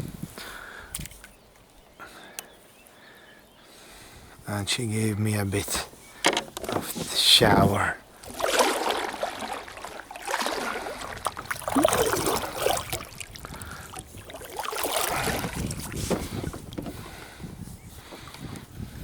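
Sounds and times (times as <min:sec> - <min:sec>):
water splashing and trickling: 0:06.5 - 0:18.3
sharp knocks on kayak: 0:15.2 - 0:17.0.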